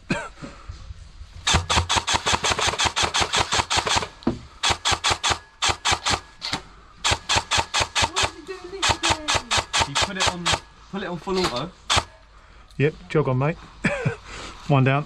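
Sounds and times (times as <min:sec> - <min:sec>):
airsoft rifle firing bursts: 0:01.4 - 0:12.2.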